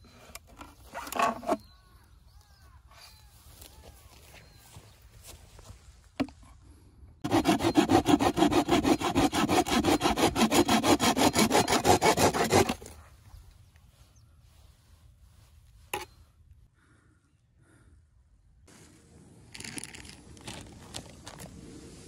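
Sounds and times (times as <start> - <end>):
hand saw cutting bamboo: 7.2 - 12.9.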